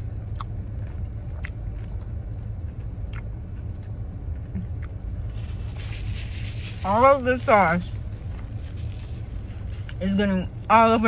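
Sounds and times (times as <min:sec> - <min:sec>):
low rumble: 0:00.0 - 0:11.0
chewing mouth sounds: 0:00.2 - 0:05.6
wet mouth clicks: 0:00.3 - 0:00.5.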